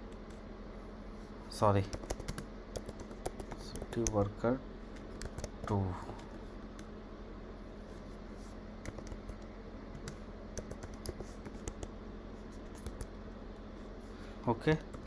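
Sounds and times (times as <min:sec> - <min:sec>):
low electrical hum: 0:00.0 - 0:15.0
keyboard typing: 0:01.8 - 0:04.2, 0:05.0 - 0:06.9, 0:08.8 - 0:11.9, 0:12.6 - 0:13.2.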